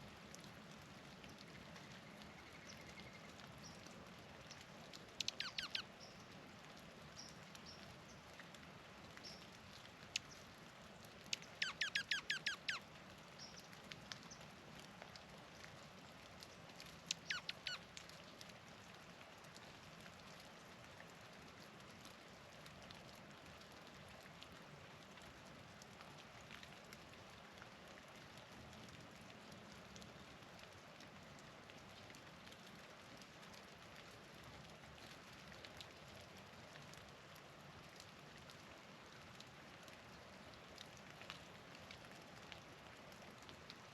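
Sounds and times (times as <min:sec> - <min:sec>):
faint steady hiss: 0:00.0 - 0:43.9
songbird chirping: 0:01.5 - 0:03.9, 0:04.5 - 0:06.4, 0:09.2 - 0:10.5, 0:11.2 - 0:12.8, 0:16.8 - 0:17.8.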